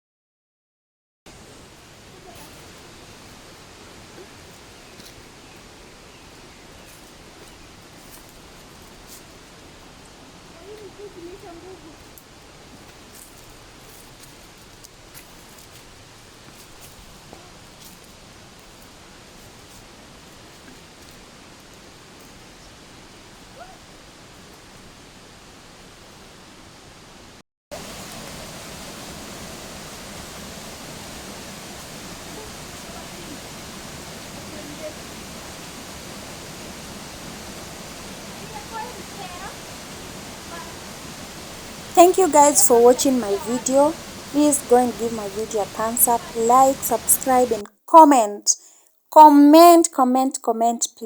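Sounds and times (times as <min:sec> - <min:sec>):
waterfall rushing: 0:27.8 - 0:47.6.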